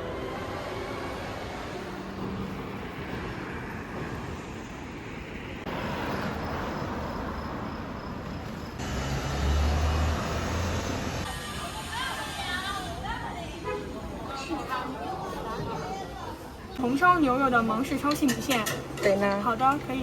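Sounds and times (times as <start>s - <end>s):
vehicle engine rumble passing: 0.0s - 13.1s
city street traffic: 0.0s - 20.0s.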